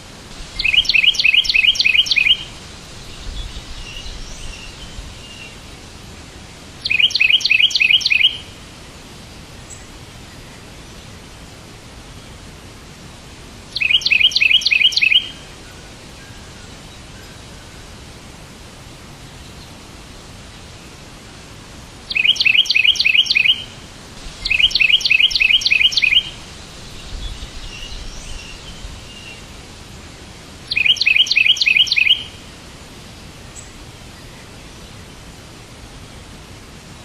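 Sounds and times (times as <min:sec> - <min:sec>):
steady background hiss: 0:00.0 - 0:37.0
songbird singing rapid high notes: 0:00.6 - 0:02.5, 0:06.8 - 0:08.5, 0:13.8 - 0:15.4, 0:22.1 - 0:23.8, 0:24.4 - 0:29.4, 0:30.7 - 0:32.4
faint bird chirps: 0:00.6 - 0:05.6, 0:06.8 - 0:08.5, 0:13.7 - 0:17.9, 0:22.1 - 0:23.8, 0:24.4 - 0:29.5, 0:30.7 - 0:32.4.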